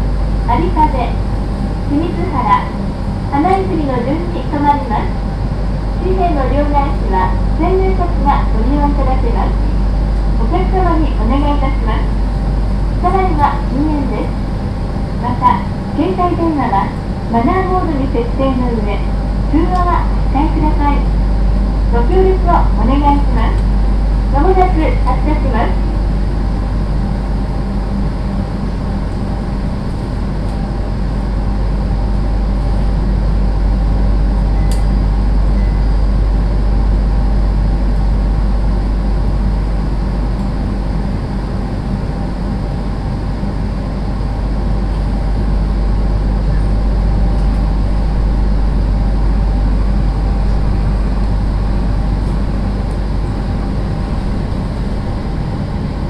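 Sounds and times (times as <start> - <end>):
train air conditioning hum: 0.0 - 56.0
sharp click: 34.7 - 34.9.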